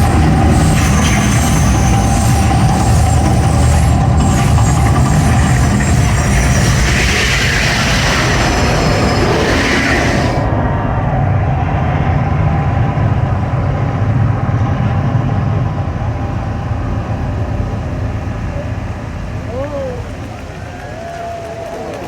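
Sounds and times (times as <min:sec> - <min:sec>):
rushing hiss of effects: 0:00.0 - 0:10.7.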